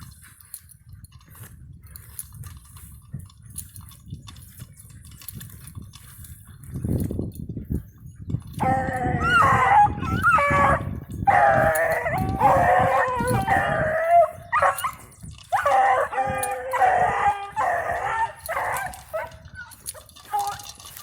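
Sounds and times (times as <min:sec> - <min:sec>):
dogs howling: 0:08.6 - 0:21.0.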